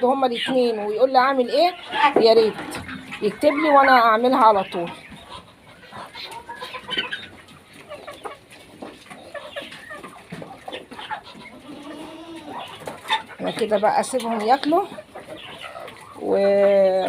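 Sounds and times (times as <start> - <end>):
chickens clucking: 0.0 - 17.0
chicken drawn-out call: 1.8 - 13.4.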